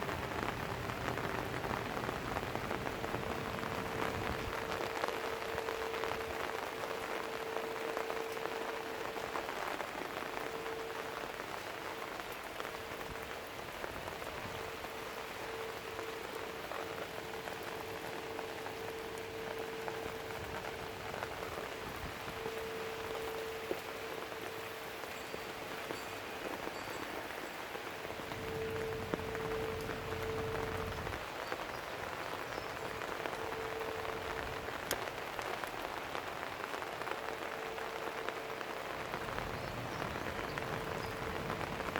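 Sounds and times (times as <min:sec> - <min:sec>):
rain pattering on surfaces: 0:00.0 - 0:41.9
steady low hum: 0:28.2 - 0:31.2.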